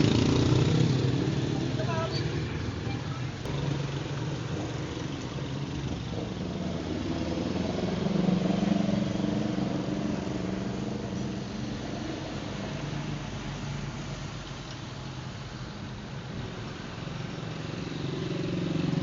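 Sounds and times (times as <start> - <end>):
vehicle engine running: 0.0 - 14.4.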